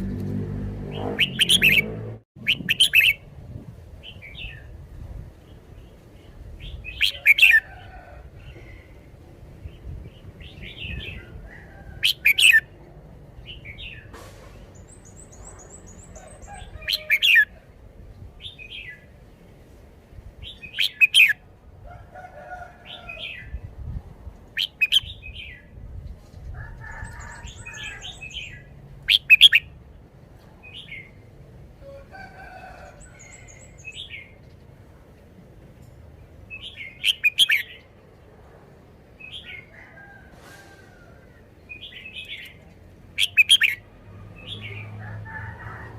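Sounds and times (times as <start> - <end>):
bird singing chirpy phrases: 0.8 - 3.2, 20.5 - 21.4, 24.6 - 25.7, 41.8 - 43.8
faint bird warbles and trills: 0.8 - 3.3, 36.5 - 38.1, 40.9 - 45.0.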